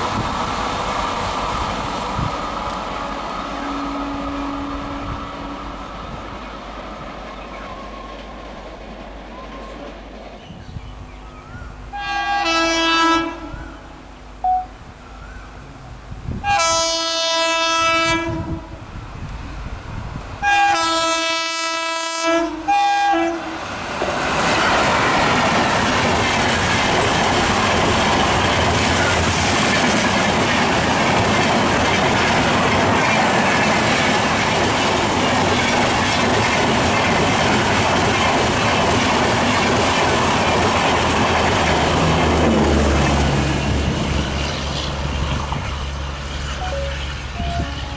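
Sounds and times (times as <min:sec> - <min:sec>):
train horn blasts: 0:03.0 - 0:05.8, 0:11.9 - 0:14.8, 0:16.3 - 0:18.8, 0:20.4 - 0:23.7, 0:46.5 - 0:47.9
train wheels clickety-clack: 0:23.7 - 0:47.9.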